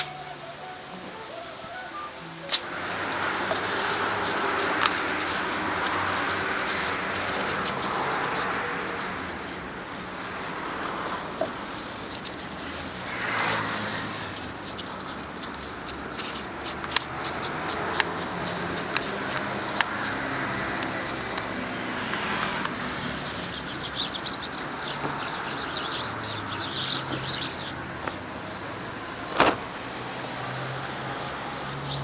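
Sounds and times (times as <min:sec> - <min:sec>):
sharp clicks: 0:02.5 - 0:06.2
rubbing and scraping: 0:02.5 - 0:28.5, 0:30.8 - 0:32.0.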